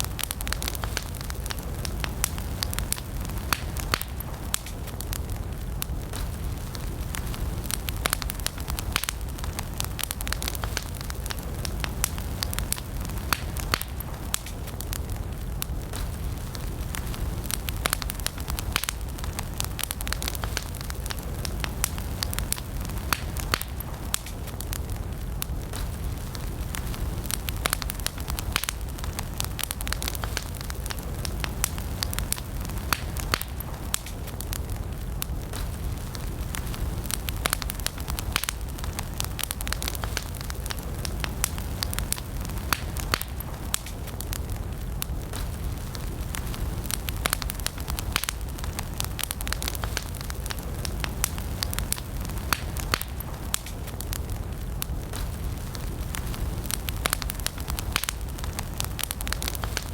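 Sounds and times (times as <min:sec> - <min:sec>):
campfire crackling and popping: 0:00.0 - 0:59.9
low rumble of flames: 0:00.0 - 0:59.9.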